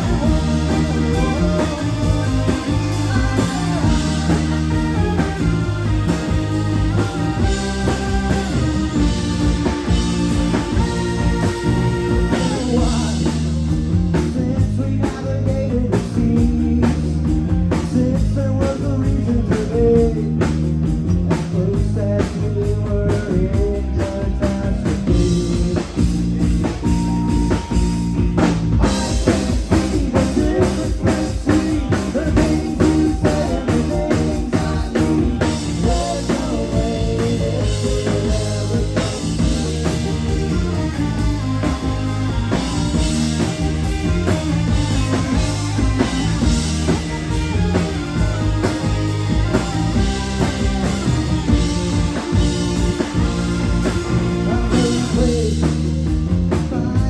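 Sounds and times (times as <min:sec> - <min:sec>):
held guitar notes: 0:00.0 - 0:14.2, 0:25.1 - 0:56.4
drums: 0:00.0 - 0:57.0
rock band playing live: 0:00.0 - 0:57.0.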